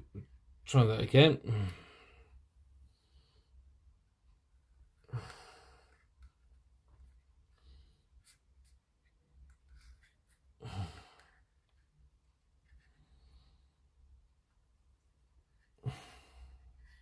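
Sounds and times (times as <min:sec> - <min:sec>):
man sighing heavily: 0:01.4 - 0:02.2, 0:05.1 - 0:05.8, 0:10.6 - 0:11.4, 0:15.8 - 0:16.6.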